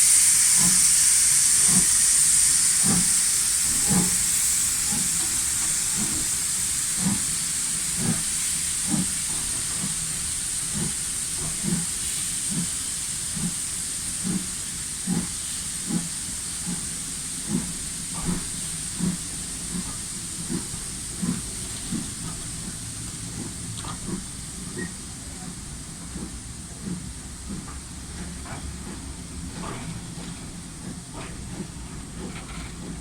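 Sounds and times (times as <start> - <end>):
low locomotive beat: 0.0 - 33.0
steam hissing: 0.0 - 33.0.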